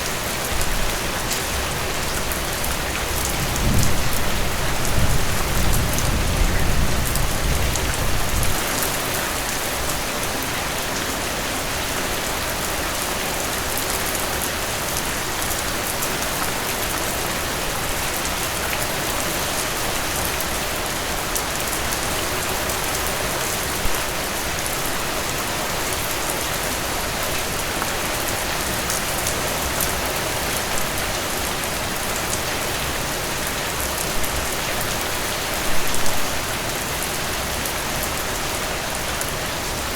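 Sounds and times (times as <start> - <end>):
heavy rain falling: 0.0 - 39.9
low rumble of thunder: 3.2 - 8.8.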